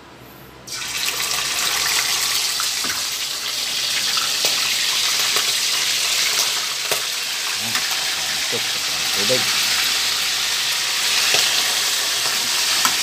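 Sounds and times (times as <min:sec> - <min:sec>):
oil sizzling in a frying pan: 0:00.7 - 0:13.0.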